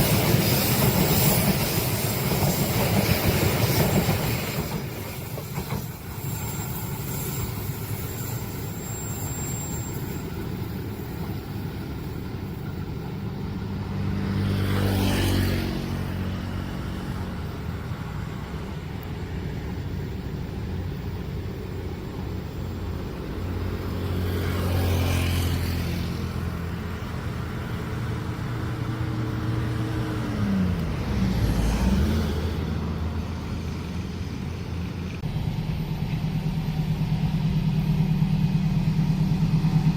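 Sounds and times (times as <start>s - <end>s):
vehicles driving past: 12.2s - 39.9s
engines idling: 32.8s - 39.9s.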